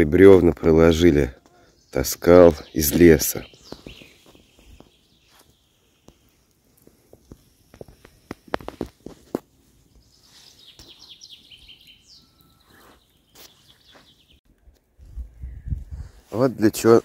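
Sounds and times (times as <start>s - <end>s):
twigs cracking underfoot: 2.8s - 14.9s
footsteps: 3.6s - 5.5s, 6.8s - 11.1s, 12.6s - 14.9s
songbird trilling: 10.2s - 14.4s.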